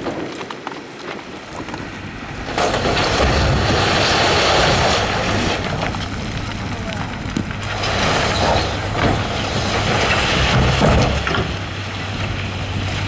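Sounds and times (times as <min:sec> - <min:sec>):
diesel engine humming: 0:01.6 - 0:13.0
loud noise: 0:02.3 - 0:11.8.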